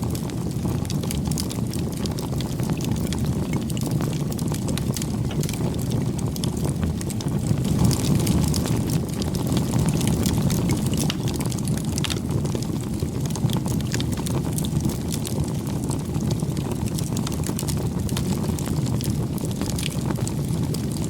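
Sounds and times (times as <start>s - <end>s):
campfire flames rumbling: 0.0s - 21.0s
fire crackling and popping: 0.0s - 21.0s.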